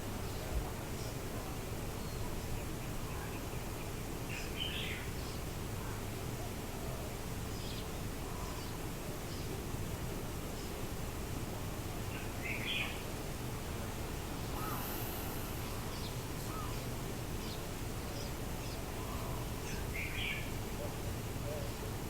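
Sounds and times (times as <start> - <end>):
faint bird chirps: 14.4 - 20.5.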